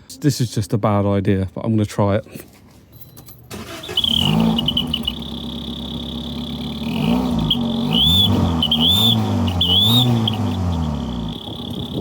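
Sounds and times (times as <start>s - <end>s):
car engine revving: 3.5s - 12.0s
high whistle from exhaust: 3.5s - 12.0s.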